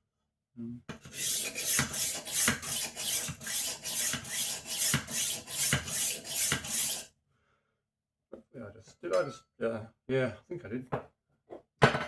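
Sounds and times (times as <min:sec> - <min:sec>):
knife sharpener rasping: 0:01.0 - 0:07.1.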